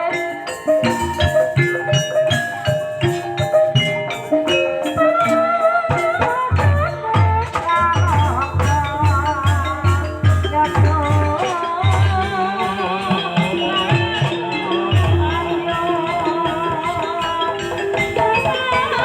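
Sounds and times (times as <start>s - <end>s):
metallophones playing melody: 0.0s - 19.0s
deep drum beats: 0.7s - 18.9s.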